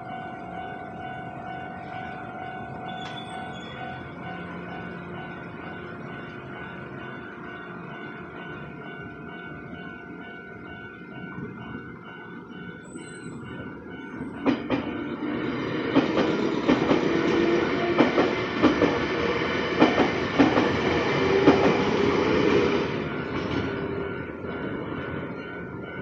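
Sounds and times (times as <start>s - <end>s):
level crossing warning bell: 0.0s - 26.0s
train wheels clacking over rail joints: 15.9s - 24.0s.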